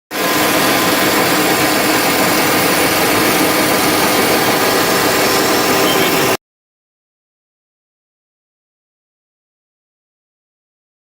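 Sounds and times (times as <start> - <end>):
milling machine running: 0.1 - 6.4.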